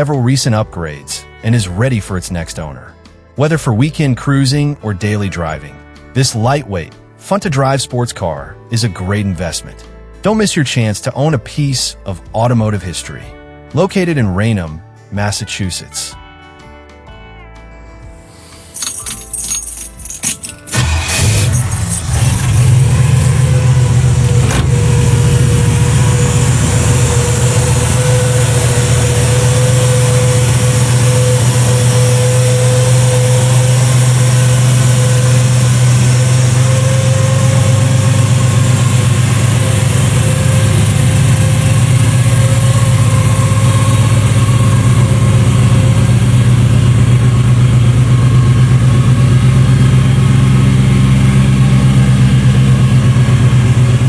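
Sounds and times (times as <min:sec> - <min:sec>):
car engine idling: 0:20.3 - 0:54.0.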